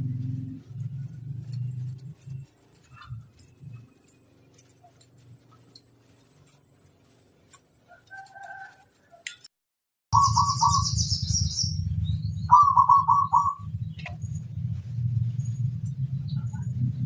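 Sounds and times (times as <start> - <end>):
steady low rumble: 0.0 - 4.2, 10.2 - 17.0
small bird chirping trill: 0.2 - 9.4, 10.1 - 17.0
dove cooing: 10.2 - 11.5, 12.5 - 13.7.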